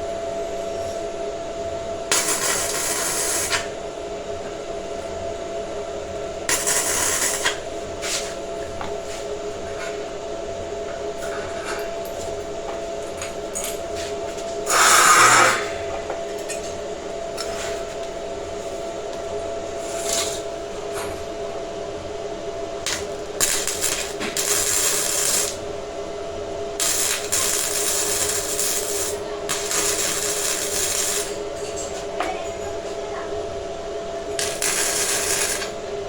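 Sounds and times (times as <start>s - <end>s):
steady hum: 0.0s - 36.0s
tool scraping steel: 14.7s - 15.8s.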